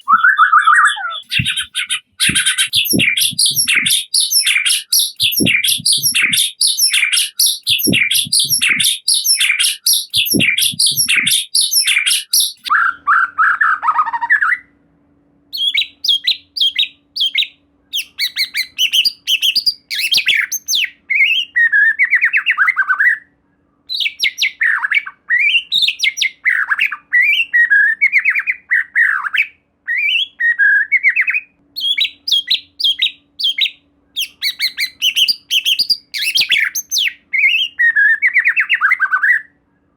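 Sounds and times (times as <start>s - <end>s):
songbird singing: 0.0s - 13.0s, 15.6s - 22.6s, 31.8s - 39.4s
faint steady hum: 0.0s - 22.0s, 22.6s - 25.3s, 31.5s - 38.1s, 39.4s - 39.9s.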